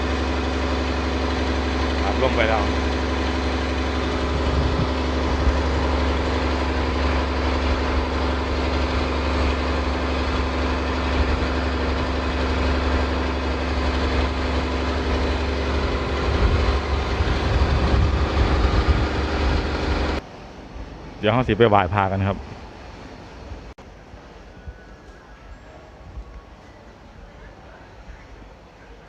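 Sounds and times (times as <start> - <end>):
engine idling: 0.0 - 20.2.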